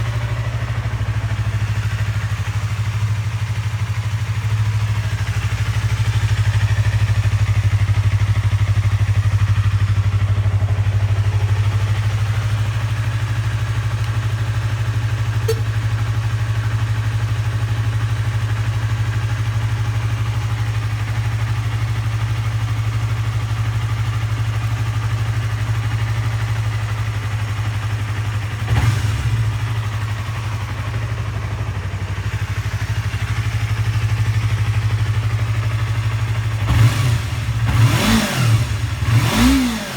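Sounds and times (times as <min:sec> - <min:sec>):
motorcycle engine idling: 0:00.0 - 0:39.9
brief sharp sound: 0:15.4 - 0:15.8.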